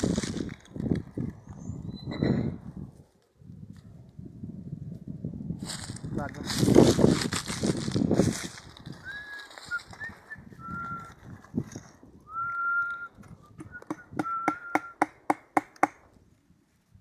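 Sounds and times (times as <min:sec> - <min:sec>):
person whistling: 0:09.0 - 0:11.2, 0:12.3 - 0:15.0.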